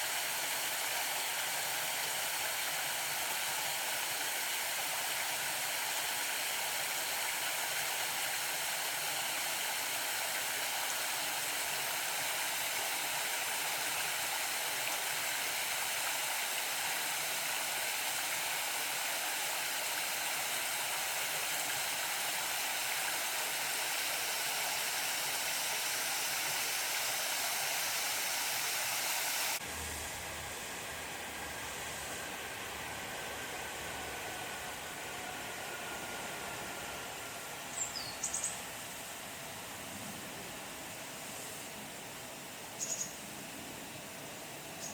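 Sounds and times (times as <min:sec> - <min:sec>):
waterfall rushing: 0:22.4 - 0:29.6.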